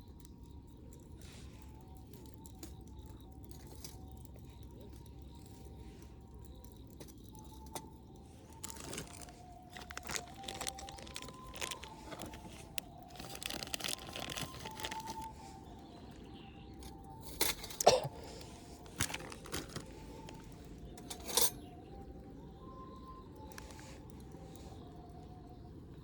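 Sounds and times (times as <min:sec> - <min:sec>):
rustling and crinkling handling: 0:07.0 - 0:21.8, 0:23.4 - 0:24.8.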